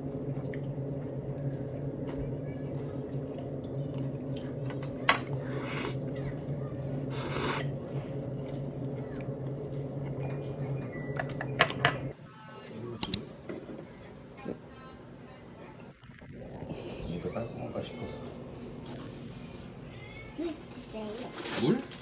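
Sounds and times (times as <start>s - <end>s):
steady low hum: 0.0s - 12.2s.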